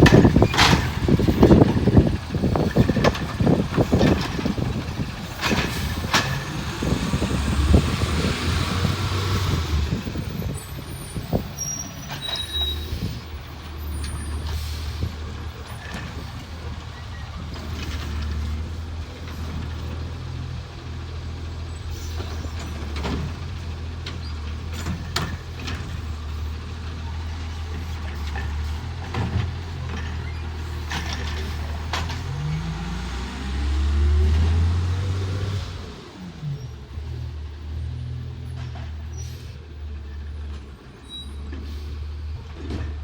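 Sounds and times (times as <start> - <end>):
metal clanks: 0.0 - 6.6
truck engine droning: 0.0 - 43.0.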